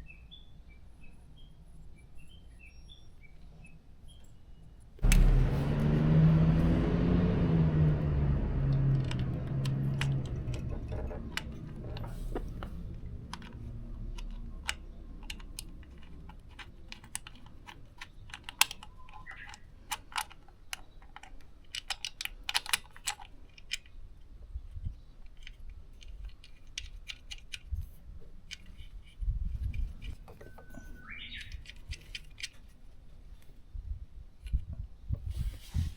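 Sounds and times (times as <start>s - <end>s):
motorcycle engine running: 5.0s - 13.2s
small hard objects clicking: 8.9s - 24.0s.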